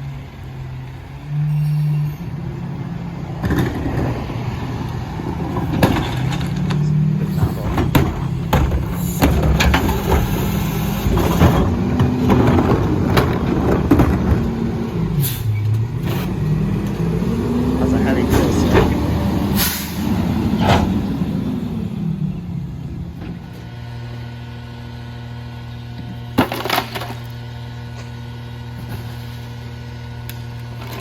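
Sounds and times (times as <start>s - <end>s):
garbage truck engine revving: 0.4s - 31.0s
clanks and knocks of trash: 5.3s - 14.9s, 26.0s - 27.4s.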